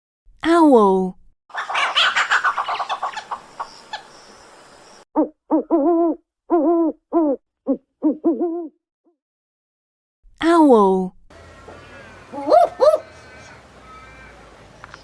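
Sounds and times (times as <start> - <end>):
owl hooting: 12.3 - 14.4.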